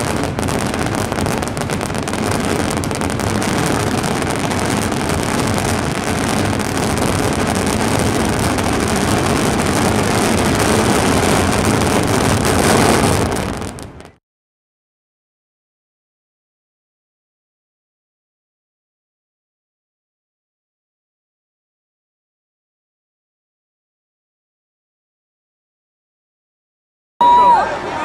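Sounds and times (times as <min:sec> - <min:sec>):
fireworks bangs and crackles: 0:00.0 - 0:14.2.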